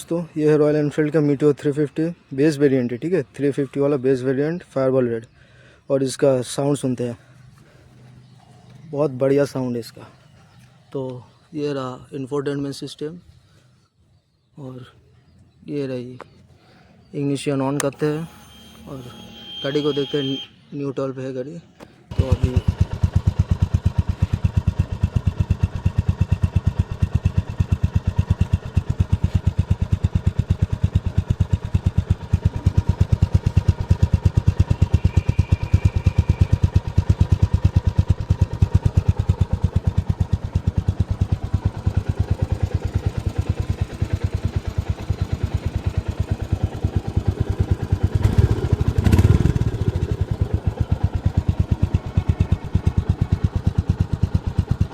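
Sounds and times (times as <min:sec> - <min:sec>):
motorcycle engine idling: 0:22.1 - 0:54.9.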